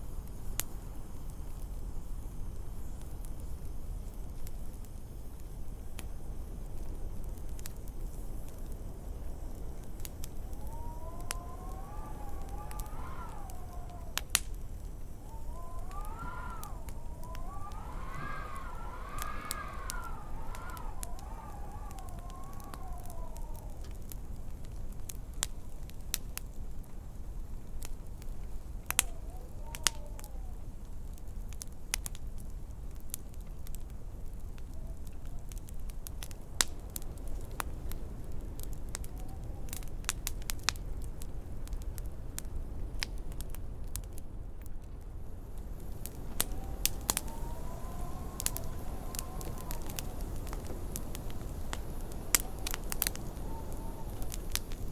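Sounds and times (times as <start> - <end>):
wood fire crackling and popping: 0.1 - 54.9
wind howling: 8.9 - 25.0, 28.7 - 30.9, 45.3 - 54.9.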